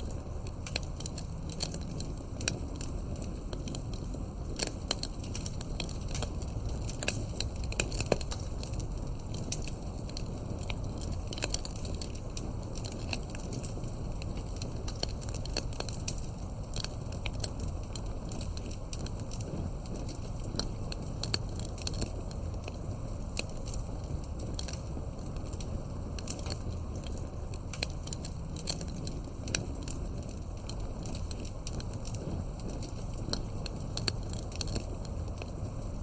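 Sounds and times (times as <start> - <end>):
campfire crackling and popping: 0.0 - 36.0
low rush of burning fire: 0.0 - 36.0.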